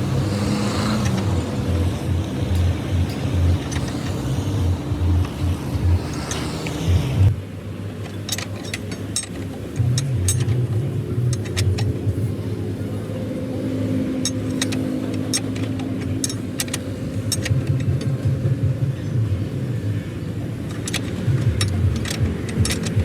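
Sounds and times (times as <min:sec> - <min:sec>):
sharp metallic clicks: 0:00.0 - 0:07.4, 0:08.0 - 0:12.2, 0:14.2 - 0:18.6, 0:20.6 - 0:23.0
vehicle engine rumble: 0:00.0 - 0:23.0.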